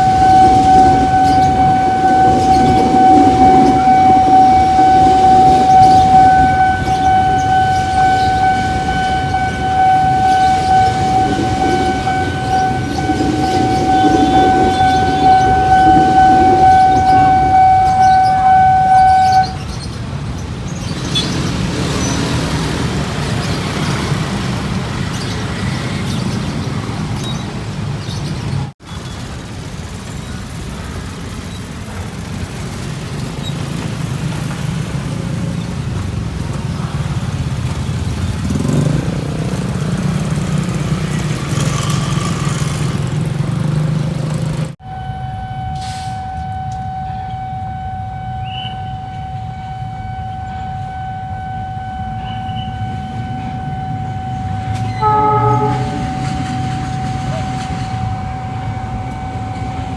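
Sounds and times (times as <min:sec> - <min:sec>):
steady tone: 0:00.0 - 0:19.6
train horn blast: 0:00.0 - 0:19.7, 0:52.2 - 0:59.9
train rumbling: 0:00.0 - 0:59.9.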